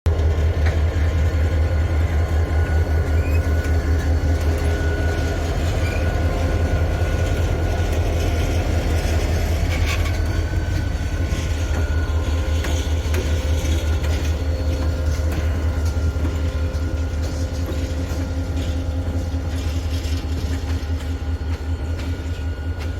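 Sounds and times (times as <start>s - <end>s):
diesel locomotive engine drone: 0.0s - 22.9s.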